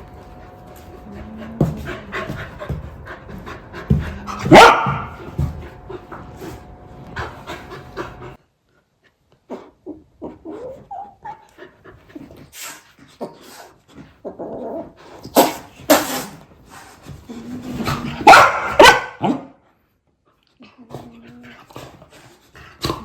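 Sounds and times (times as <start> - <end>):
dog barking: 4.3 - 5.2, 18.2 - 19.6
dog whimpering and yipping: 10.4 - 11.5.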